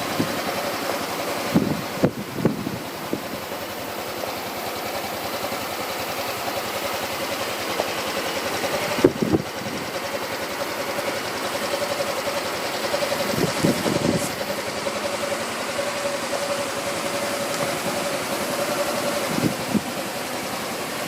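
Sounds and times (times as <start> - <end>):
scooter engine idling: 0.0 - 21.0.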